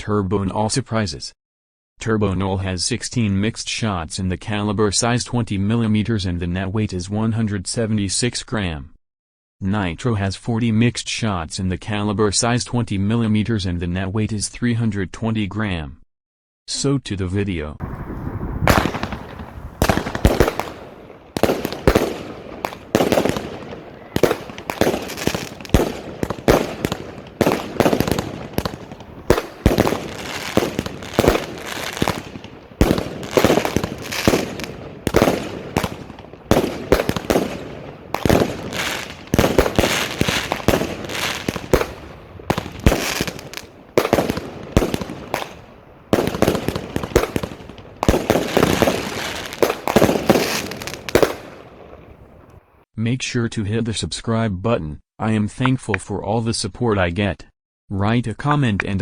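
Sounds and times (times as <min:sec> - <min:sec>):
firework bangs: 0:17.8 - 0:52.7.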